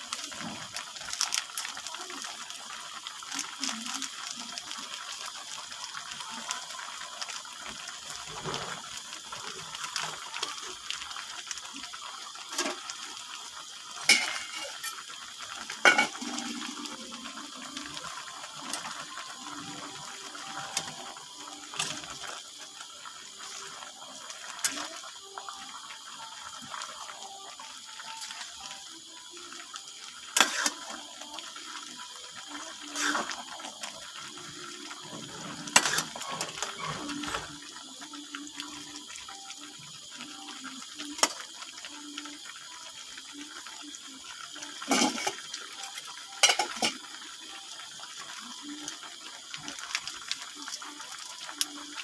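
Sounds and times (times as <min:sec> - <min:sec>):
water running: 0:00.0 - 0:52.0
pots and utensils clinking: 0:14.0 - 0:15.0, 0:15.7 - 0:16.7, 0:35.1 - 0:37.6, 0:44.8 - 0:47.1.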